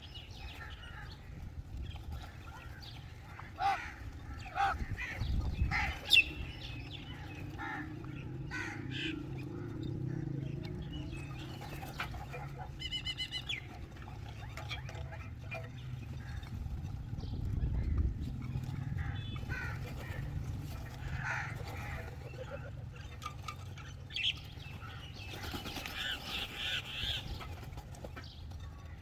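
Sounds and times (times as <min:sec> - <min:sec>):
steady low rumble: 0:00.4 - 0:14.5, 0:15.1 - 0:23.1
rapid high bird twittering: 0:01.9 - 0:16.5
crows cawing: 0:03.2 - 0:06.5, 0:07.2 - 0:10.3, 0:18.9 - 0:20.3, 0:21.0 - 0:22.1.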